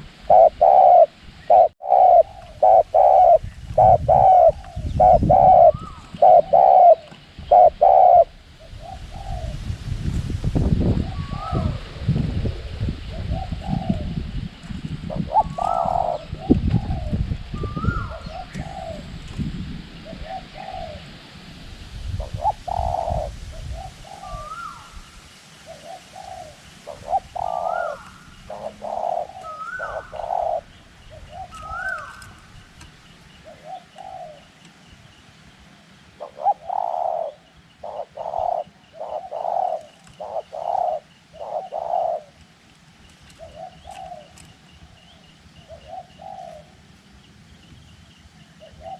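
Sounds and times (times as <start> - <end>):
doves cooing: 0.0 - 9.6, 13.0 - 14.3, 15.0 - 19.3, 20.0 - 21.2, 22.2 - 25.0, 25.6 - 34.6, 36.1 - 45.0, 45.6 - 46.9, 48.6 - 48.9
wind rumbling on microphone: 0.0 - 35.2.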